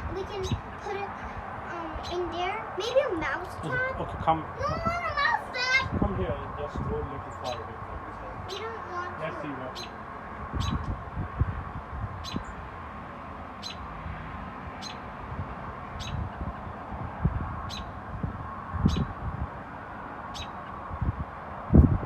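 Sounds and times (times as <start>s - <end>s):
bird chirping: 0.2s - 1.3s, 7.2s - 10.9s, 12.2s - 12.6s, 13.6s - 13.9s, 14.8s - 15.1s, 16.0s - 16.5s, 17.6s - 18.0s, 18.8s - 19.1s, 20.3s - 20.8s.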